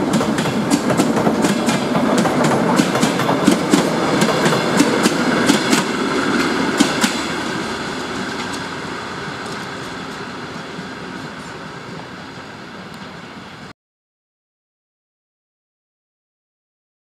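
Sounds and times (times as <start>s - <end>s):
train wheels clacking over rail joints: 0.0s - 10.3s
train rumble: 0.0s - 13.7s.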